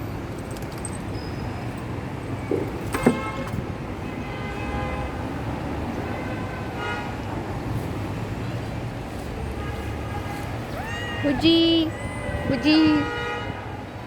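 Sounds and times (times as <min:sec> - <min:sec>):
traffic rumble: 0:00.0 - 0:14.0
vehicle horns tooting: 0:02.9 - 0:05.2, 0:11.3 - 0:13.8.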